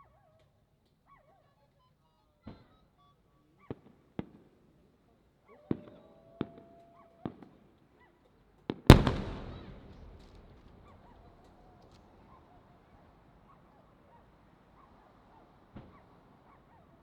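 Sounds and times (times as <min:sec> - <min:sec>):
loud firework boom with rumbling echo: 0:08.9 - 0:10.8
firework shells bursting: 0:08.9 - 0:11.0.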